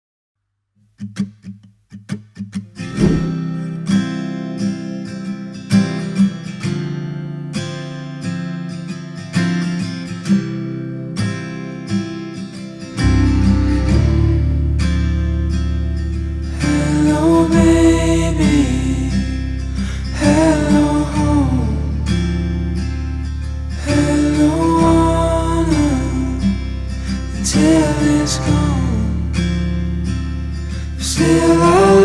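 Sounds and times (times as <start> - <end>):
acoustic guitar: 0.9 - 32.0
bass: 2.8 - 3.8, 12.8 - 32.0.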